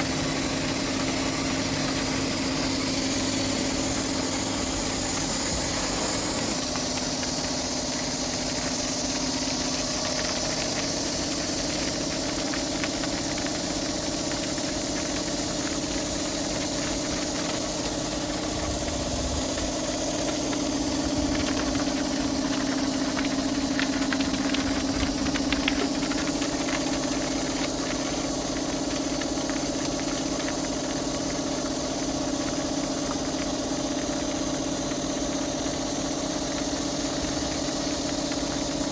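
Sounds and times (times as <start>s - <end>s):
crackling: 0.0s - 38.9s
high-pressure water spray hiss: 0.0s - 38.9s
pressure washer motor hum: 0.0s - 38.9s.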